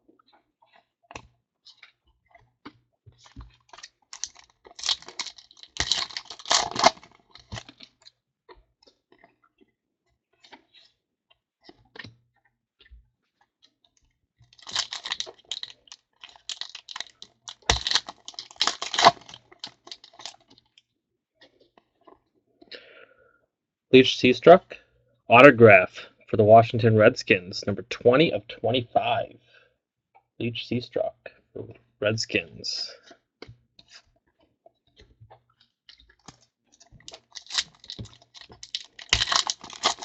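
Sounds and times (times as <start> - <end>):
foil wrappers crinkling: 3.2 - 7.8, 14.5 - 20.6, 37.0 - 40.0.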